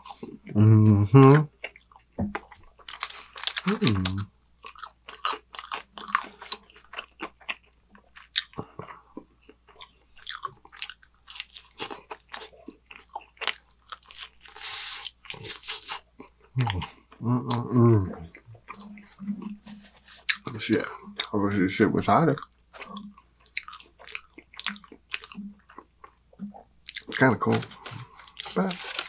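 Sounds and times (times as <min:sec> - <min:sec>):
chewing with crisp crunches: 0:01.5 - 0:29.0
person humming mmm: 0:03.6 - 0:04.2, 0:16.6 - 0:18.3.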